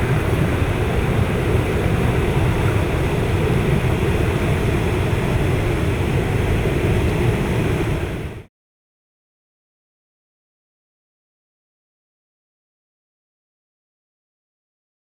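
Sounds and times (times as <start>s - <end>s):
floodwater rushing: 0.0s - 8.2s.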